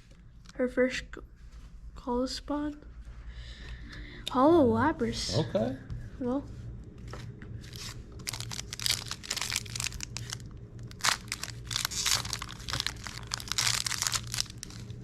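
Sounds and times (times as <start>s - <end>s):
foil wrapper crinkling: 7.7s - 15.0s.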